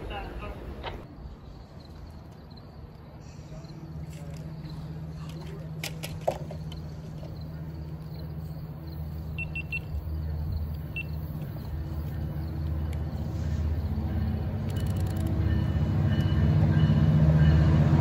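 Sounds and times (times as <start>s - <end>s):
diesel train rumble: 0.0s - 18.0s
faint high beeps: 9.4s - 10.0s, 10.9s - 11.2s.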